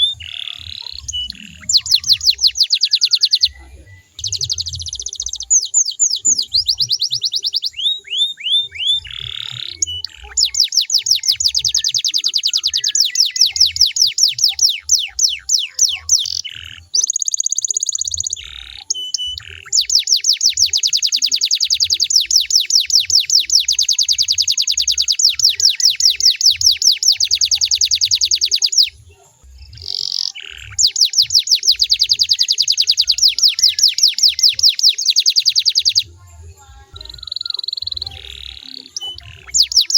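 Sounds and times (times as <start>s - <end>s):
canary trilling: 0.0s - 39.9s.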